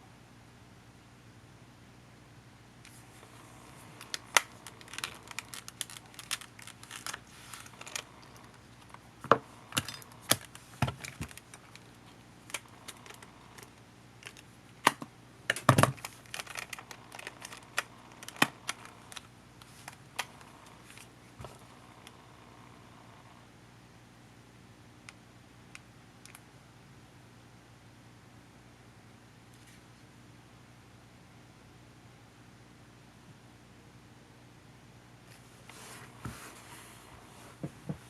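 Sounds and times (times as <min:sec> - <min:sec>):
tools and plastic parts clicking: 0:03.9 - 0:21.5.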